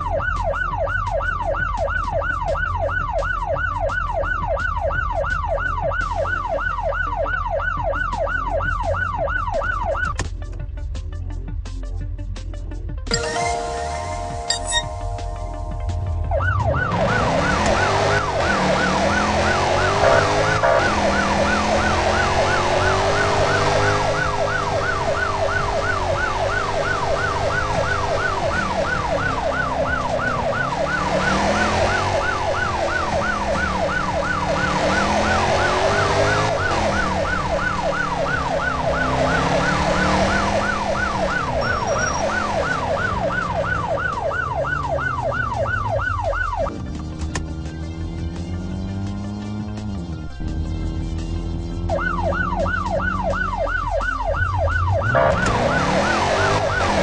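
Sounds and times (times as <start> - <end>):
siren-like yelping tone: 13.1 - 46.7, 51.8 - 57.0.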